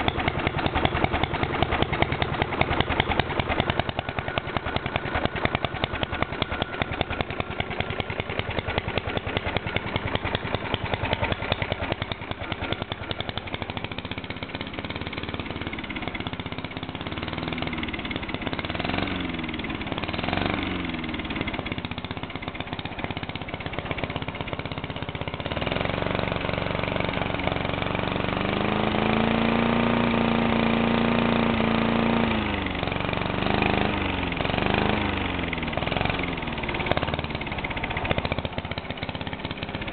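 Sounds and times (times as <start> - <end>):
lawnmower engine revving: 0.0 - 39.9.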